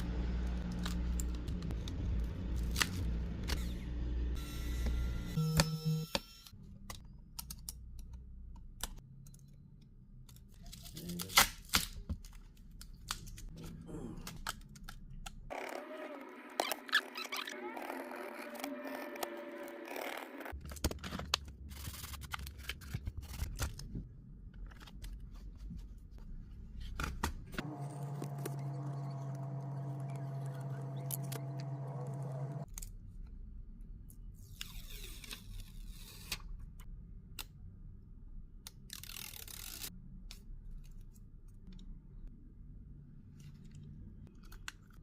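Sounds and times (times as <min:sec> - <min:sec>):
steady hum: 0:27.6 - 0:32.7.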